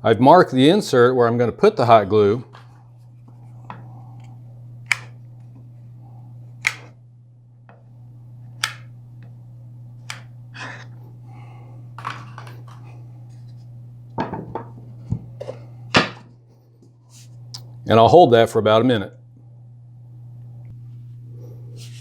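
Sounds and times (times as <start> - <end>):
steady low hum: 0.0 - 22.0
sharp clicks and taps: 6.6 - 6.9, 8.6 - 8.8.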